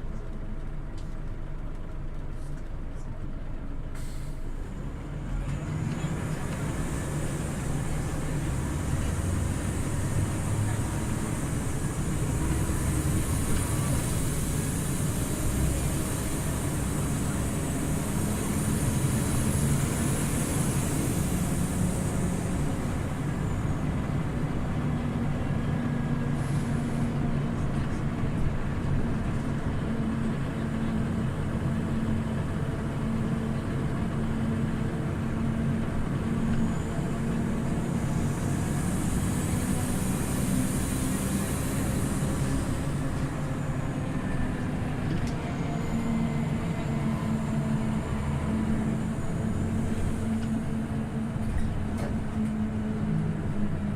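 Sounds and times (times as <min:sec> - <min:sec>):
bus engine running: 0:00.0 - 0:53.9
road noise: 0:00.0 - 0:53.9.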